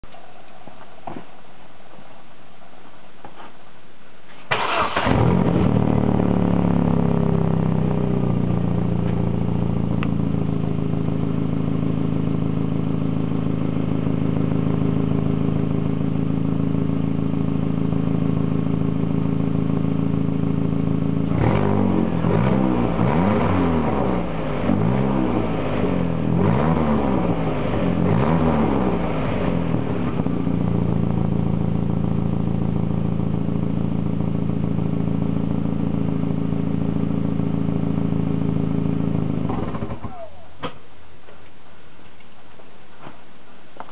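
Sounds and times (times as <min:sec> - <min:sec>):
car engine starting and idling: 0:04.3 - 0:41.2
engine revving in quick blips: 0:04.5 - 0:10.2, 0:21.2 - 0:31.7, 0:34.5 - 0:40.4.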